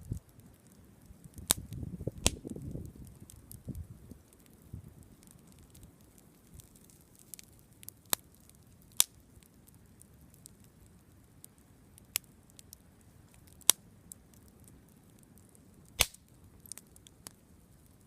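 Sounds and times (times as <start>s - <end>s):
campfire wood crackling: 0.0s - 18.0s
loud wood pops: 16.0s - 16.3s.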